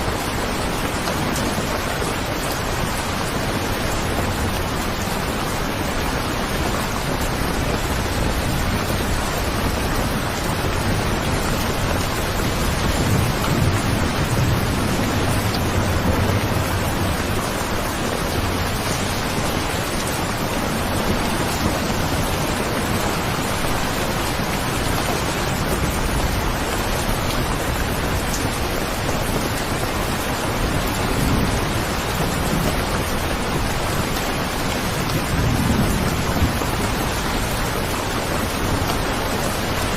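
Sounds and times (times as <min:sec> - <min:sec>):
steady rain falling: 0:00.0 - 0:39.9
thunder rumbling: 0:00.0 - 0:39.9.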